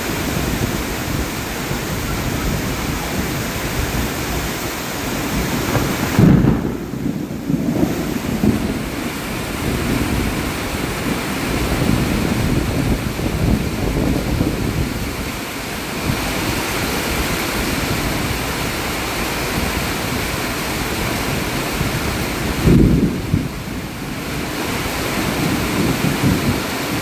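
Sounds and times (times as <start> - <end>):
low rumbling: 0.0 - 15.2
heavy rain pouring: 0.0 - 27.0.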